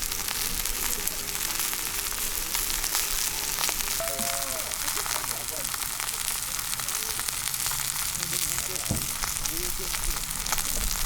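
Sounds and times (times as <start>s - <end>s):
food sizzling over campfire: 0.0s - 11.0s
whistle-like tone: 4.0s - 4.8s.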